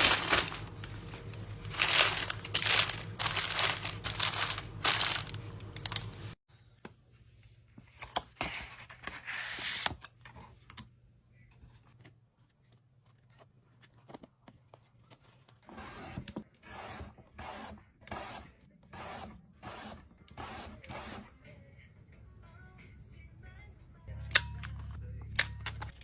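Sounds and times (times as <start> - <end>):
plastic and paper rustling: 0.0 - 6.4.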